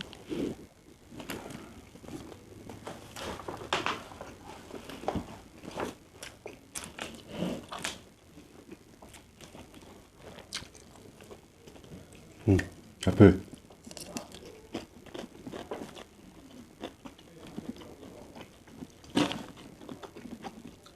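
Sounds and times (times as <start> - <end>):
person chewing food: 4.2 - 12.7, 13.5 - 20.9.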